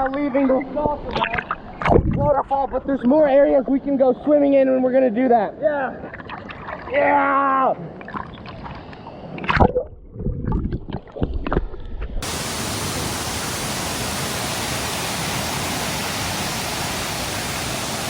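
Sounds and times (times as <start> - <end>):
waterfall rushing: 12.2 - 18.0.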